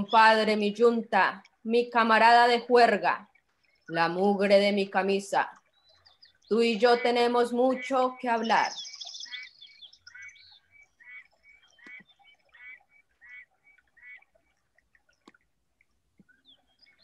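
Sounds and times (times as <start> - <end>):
faint bird chirps: 5.6 - 14.2.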